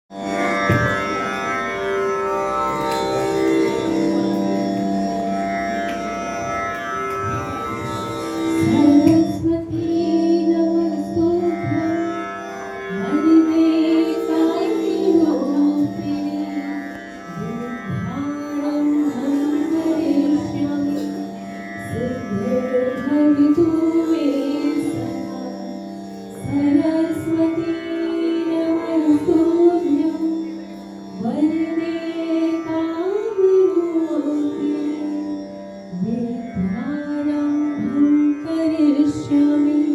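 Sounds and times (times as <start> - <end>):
steady drone: 0.2 - 39.9
woman singing: 8.6 - 12.2, 12.9 - 30.5, 31.2 - 39.9.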